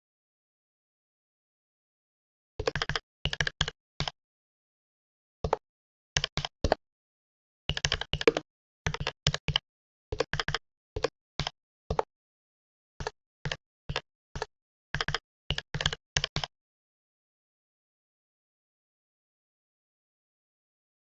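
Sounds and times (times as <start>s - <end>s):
keyboard typing: 2.6s - 4.1s, 6.2s - 6.8s, 7.7s - 9.6s, 10.2s - 12.1s, 13.5s - 16.5s.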